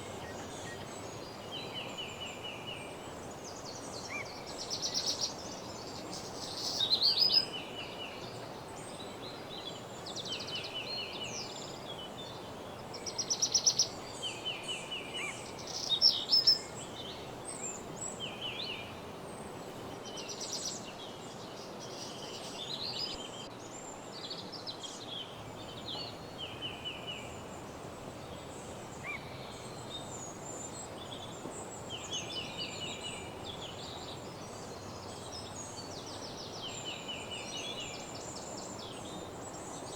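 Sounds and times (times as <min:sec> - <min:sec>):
soft ambient hiss: 0:00.0 - 0:39.9
songbirds singing and calling: 0:00.0 - 0:39.9.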